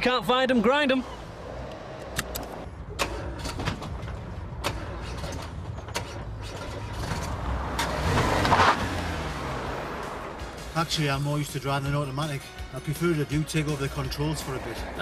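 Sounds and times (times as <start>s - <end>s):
car engine idling: 0.8s - 12.4s
gearbox clicks and clunks: 2.0s - 8.6s.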